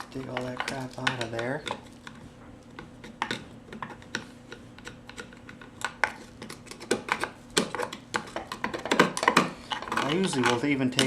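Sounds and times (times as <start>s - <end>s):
hand tool clicking and scraping: 9.3s - 11.0s.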